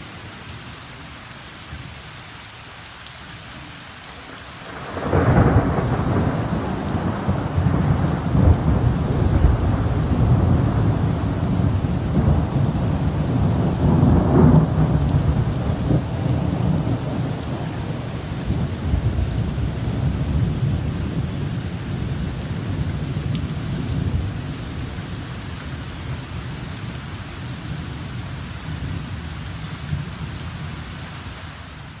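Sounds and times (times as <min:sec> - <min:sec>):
heavy rain falling: 0:00.0 - 0:32.0
thunder rumbling: 0:04.7 - 0:29.2.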